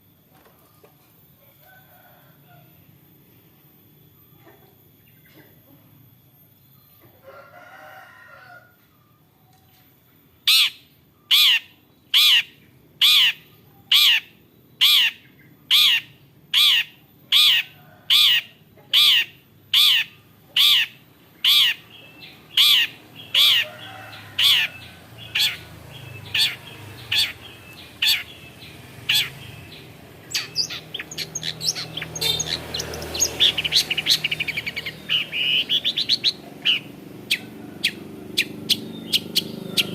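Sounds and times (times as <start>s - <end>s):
shrike calling: 10.4s - 39.9s.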